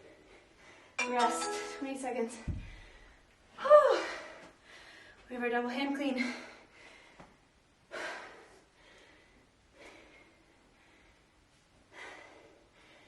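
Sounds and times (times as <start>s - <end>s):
woman breathing hard: 3.9s - 5.3s, 6.2s - 13.0s.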